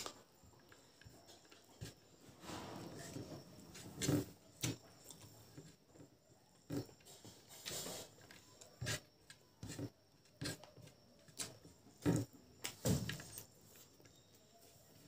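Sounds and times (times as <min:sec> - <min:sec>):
fingers scraping rice on a plate: 0:06.7 - 0:10.9.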